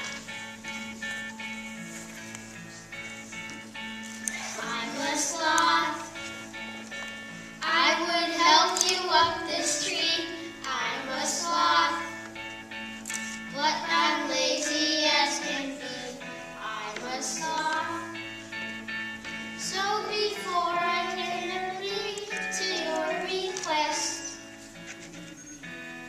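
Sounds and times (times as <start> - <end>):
children singing: 4.3 - 6.6, 7.6 - 12.3, 13.5 - 18.3, 19.6 - 24.4.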